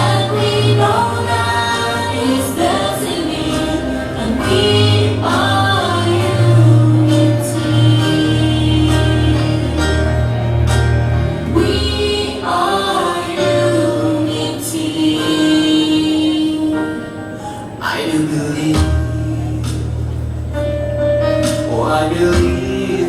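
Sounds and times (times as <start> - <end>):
children singing pop song: 0.0 - 10.1, 11.4 - 16.9.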